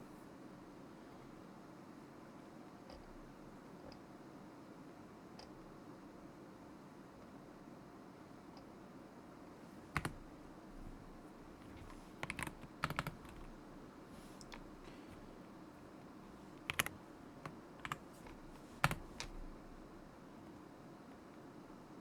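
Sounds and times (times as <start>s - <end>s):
mechanical keyboard typing: 9.8s - 15.3s, 16.3s - 19.7s.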